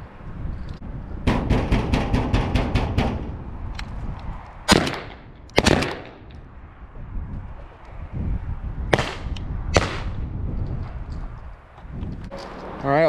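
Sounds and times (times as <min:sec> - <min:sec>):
shotgun shots ringing: 0:04.7 - 0:06.3, 0:08.9 - 0:10.2.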